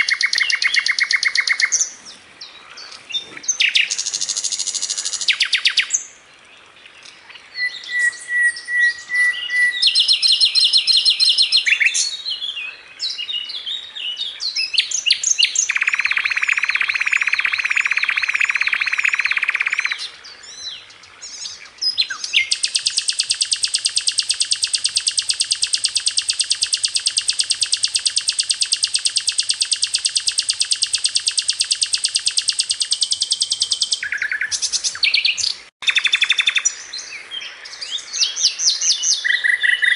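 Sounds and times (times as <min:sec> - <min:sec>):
rapid-fire bird trill: 0:00.0 - 0:01.8, 0:08.0 - 0:11.9, 0:15.4 - 0:20.0, 0:22.4 - 0:36.7
bird singing varied chirps: 0:00.0 - 0:06.2, 0:07.0 - 0:39.9.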